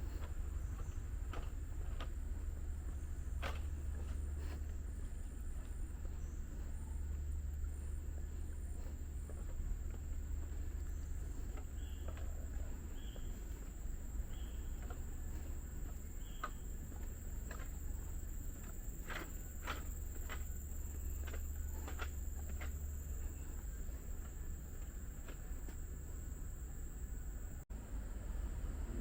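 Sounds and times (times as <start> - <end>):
footsteps on a trail: 0.0 - 26.6
insects droning: 0.0 - 29.0
bird calling: 8.1 - 18.2.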